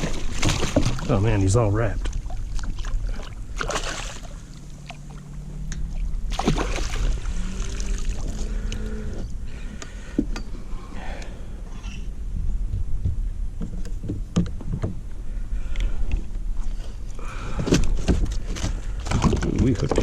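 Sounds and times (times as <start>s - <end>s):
water splashing: 0.0s - 8.7s
low wind rumble on microphone: 4.2s - 20.0s.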